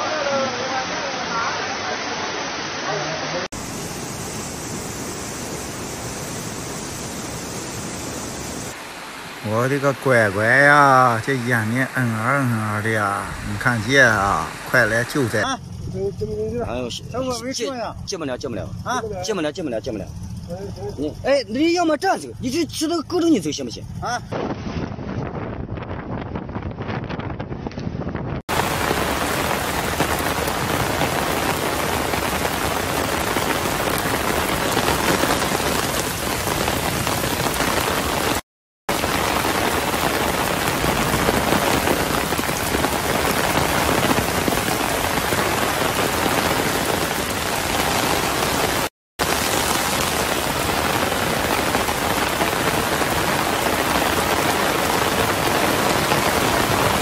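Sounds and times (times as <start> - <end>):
heavy rain pouring: 0.0 - 15.6, 28.5 - 57.0.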